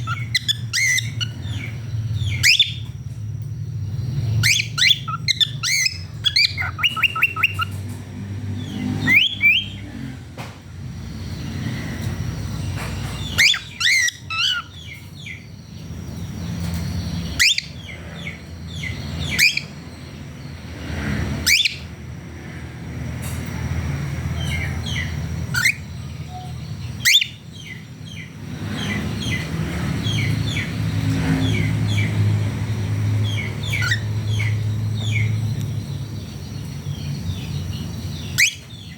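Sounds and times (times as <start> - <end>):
cockatiels chirping and whistling: 0.0 - 3.0, 4.4 - 7.9, 9.0 - 9.8, 12.8 - 15.4, 17.3 - 19.7, 21.5 - 21.8, 24.5 - 27.8, 33.3 - 35.3, 38.1 - 38.9.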